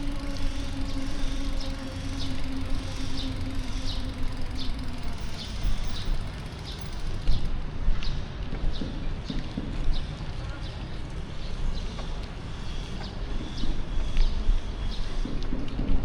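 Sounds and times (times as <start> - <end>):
steady hum: 0.0 - 7.7
traffic rumble: 0.0 - 16.0
wind: 0.0 - 16.0.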